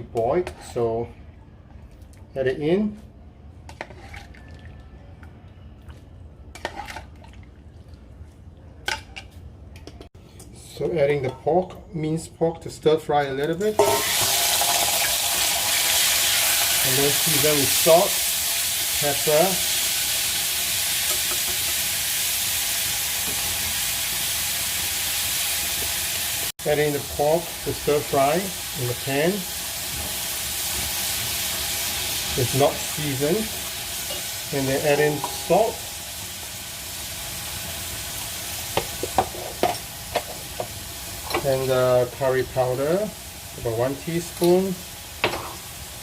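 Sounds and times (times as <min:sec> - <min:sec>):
meat sizzling in a frying pan: 0:13.8 - 0:46.0.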